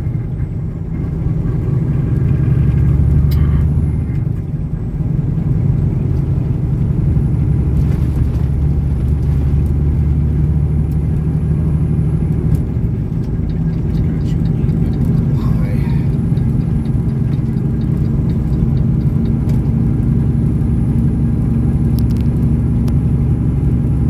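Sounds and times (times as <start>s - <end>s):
road noise: 0.0s - 24.0s
truck diesel engine drone: 0.0s - 24.0s.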